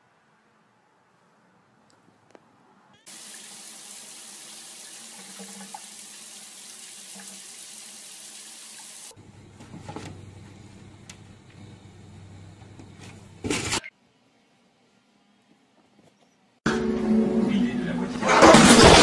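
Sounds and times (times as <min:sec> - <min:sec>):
tap water running into tub: 0:03.1 - 0:09.1.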